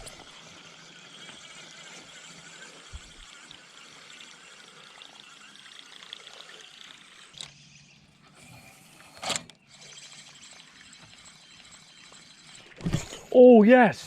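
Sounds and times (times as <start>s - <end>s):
water splashing and trickling: 0.0s - 7.5s.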